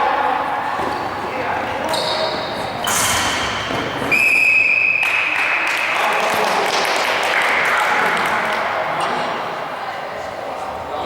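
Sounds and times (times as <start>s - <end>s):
echoing court noise: 0.0s - 11.0s
referee's whistle blast: 4.0s - 5.9s.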